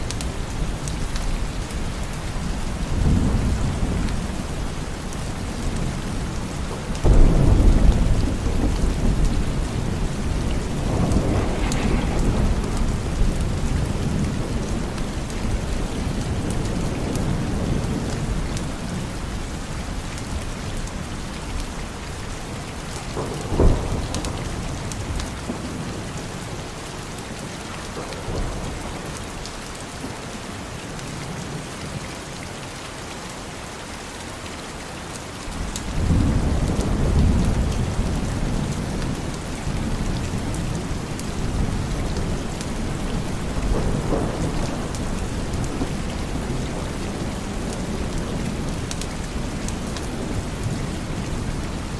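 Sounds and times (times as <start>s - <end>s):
steady rain: 0.0s - 51.9s
thunder rumbling: 0.1s - 19.3s, 23.1s - 26.6s, 35.6s - 51.9s.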